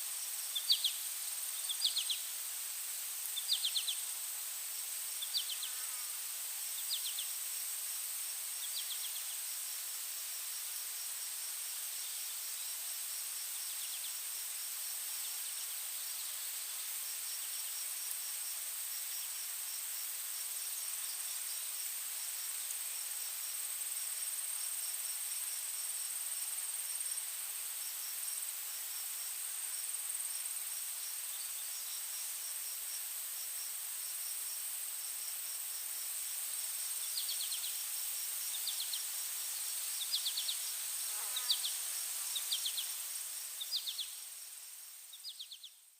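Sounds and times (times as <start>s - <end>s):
crickets trilling: 33.6s - 45.8s.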